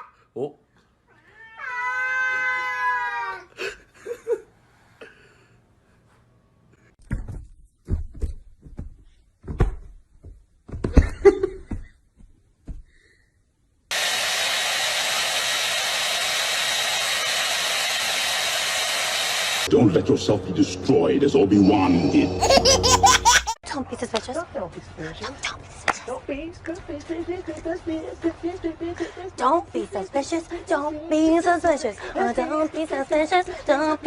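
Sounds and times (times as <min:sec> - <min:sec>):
cat meowing: 0:01.1 - 0:03.2
knocks and thumps: 0:07.0 - 0:12.9
steady rushing blower noise: 0:13.9 - 0:23.6.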